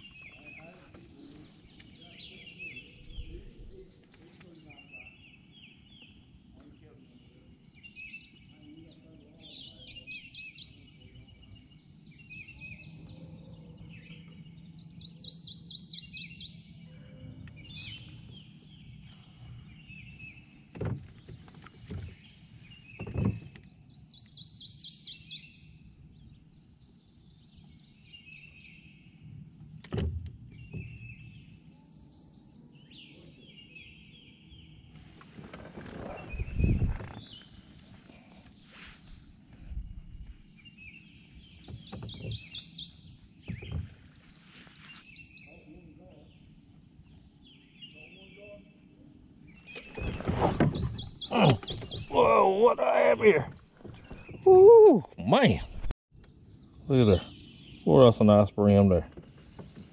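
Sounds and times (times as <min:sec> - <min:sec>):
birds chirping softly: 0:00.0 - 0:59.9
dull knocks: 0:49.8 - 0:52.2.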